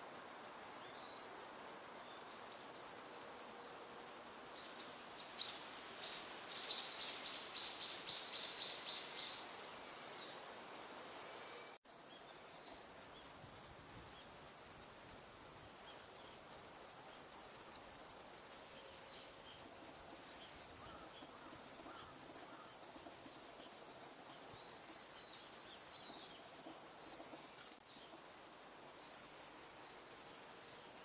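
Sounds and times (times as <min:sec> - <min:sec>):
birds calling: 0:18.5 - 0:28.2.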